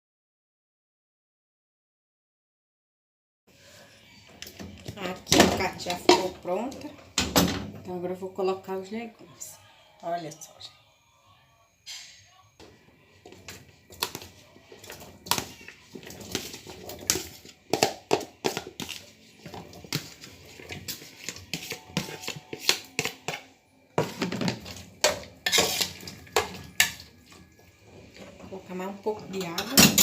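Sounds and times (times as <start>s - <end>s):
utensils clattering in a pot: 4.4s - 7.9s, 11.9s - 30.0s.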